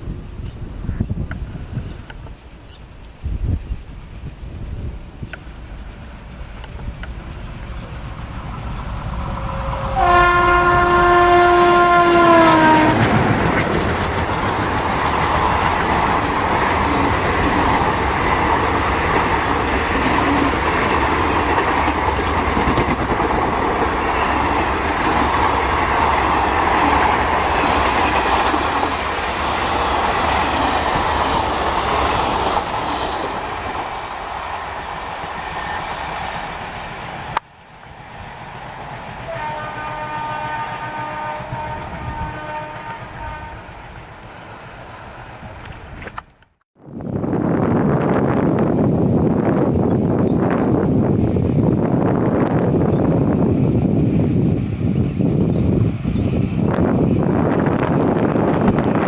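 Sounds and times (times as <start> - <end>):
train rumble and wheel clatter: 0.0 - 59.0
train horn: 9.0 - 13.4, 39.2 - 43.8.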